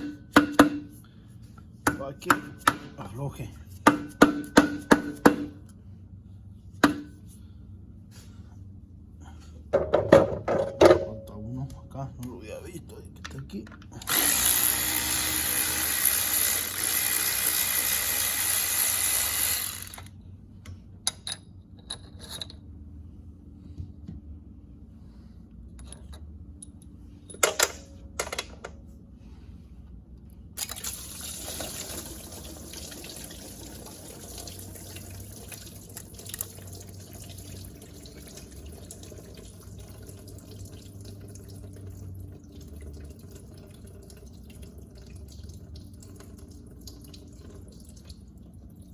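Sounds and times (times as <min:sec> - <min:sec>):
power tool running: 0:14.0 - 0:20.1
water running and dripping: 0:30.7 - 0:48.9.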